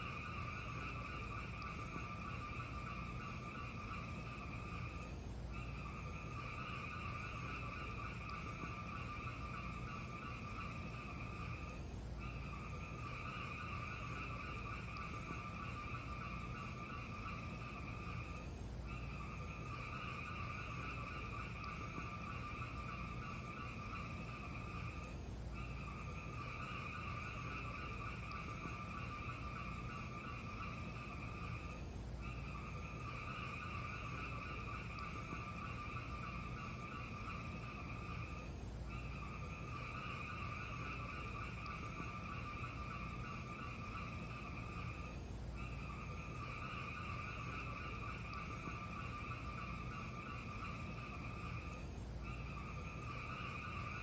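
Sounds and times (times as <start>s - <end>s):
fireplace hiss and rumble: 0.0s - 54.0s.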